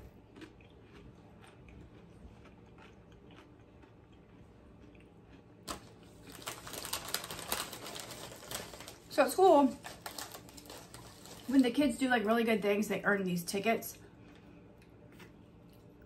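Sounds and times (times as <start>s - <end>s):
chewing food: 0.0s - 9.0s, 13.9s - 16.0s
crinkly chip bag rustle: 5.6s - 13.6s.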